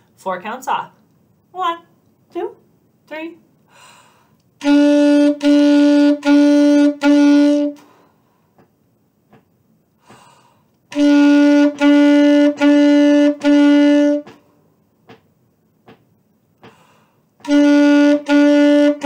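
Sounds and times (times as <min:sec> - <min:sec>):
faint breath: 0:03.6 - 0:04.4, 0:07.8 - 0:08.6, 0:10.0 - 0:10.8, 0:16.6 - 0:17.3.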